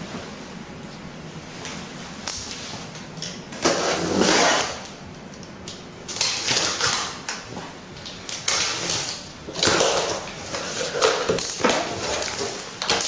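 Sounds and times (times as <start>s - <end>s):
packaging scraping and rustling: 8.4s - 13.0s.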